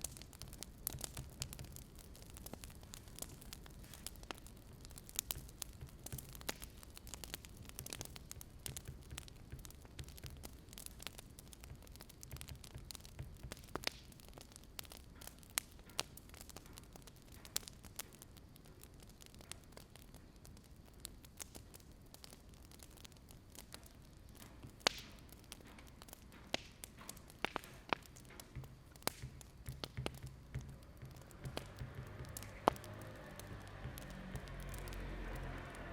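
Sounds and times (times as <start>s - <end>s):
wood fire crackling: 0.0s - 35.9s
faint low rumble: 28.5s - 35.9s.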